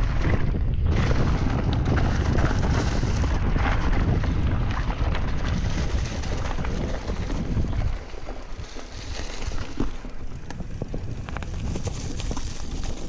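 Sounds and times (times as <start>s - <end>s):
wind buffeting microphone: 0.0s - 13.0s
bike clicks and knocks: 9.4s - 13.0s.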